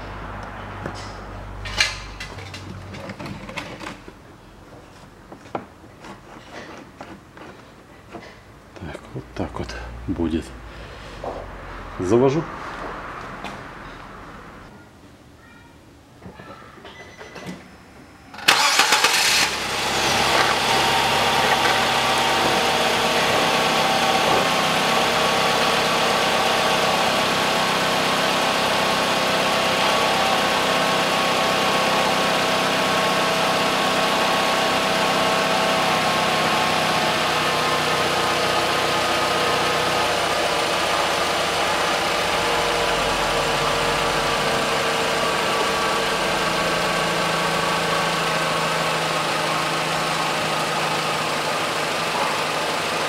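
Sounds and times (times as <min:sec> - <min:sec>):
engine cranking: 0:18.4 - 0:22.8
engine idling: 0:18.5 - 0:53.0.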